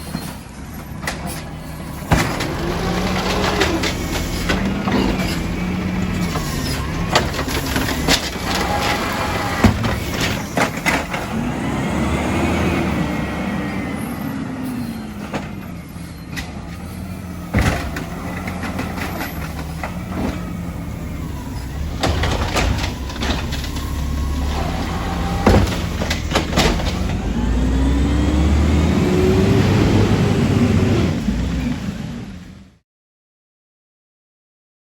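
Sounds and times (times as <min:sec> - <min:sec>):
knocks and clatter: 0:00.1 - 0:11.4, 0:17.5 - 0:20.6, 0:21.3 - 0:27.3
garbage truck engine revving: 0:00.6 - 0:32.8.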